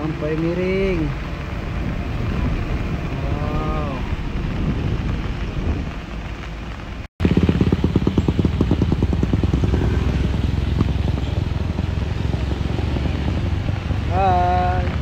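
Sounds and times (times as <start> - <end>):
motorcycle engine labouring uphill: 7.2 - 15.0.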